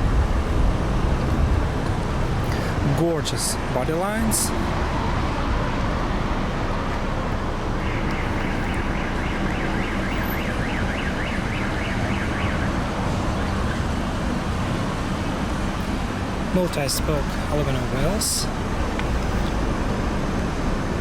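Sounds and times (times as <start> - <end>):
traffic rumble: 0.0 - 21.0
faint warbling siren: 7.7 - 13.9.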